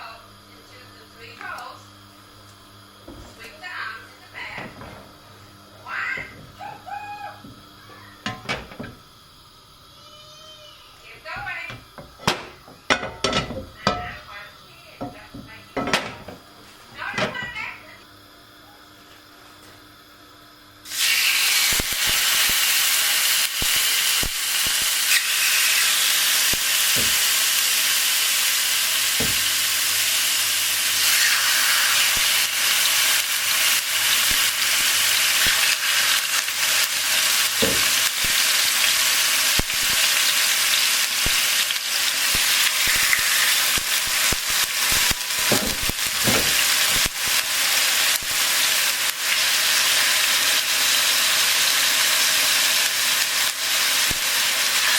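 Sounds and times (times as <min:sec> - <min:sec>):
food sizzling in hot oil: 0:02.0 - 0:17.8, 0:20.8 - 0:54.9
oil crackling and popping: 0:20.9 - 0:54.9.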